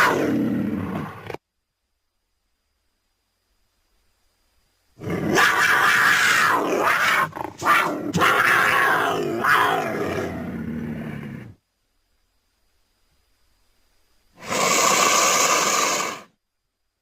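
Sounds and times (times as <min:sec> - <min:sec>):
creature call: 0:00.0 - 0:01.2, 0:05.0 - 0:11.6, 0:14.4 - 0:16.3.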